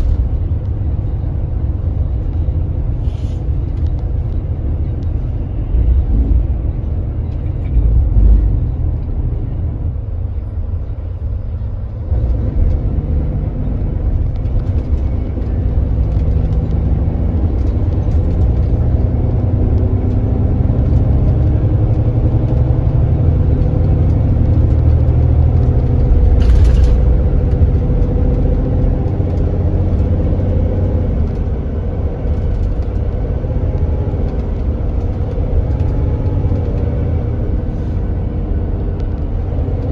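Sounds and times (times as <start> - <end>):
bus engine accelerating: 0.0 - 39.9
brief air hiss: 3.0 - 3.5.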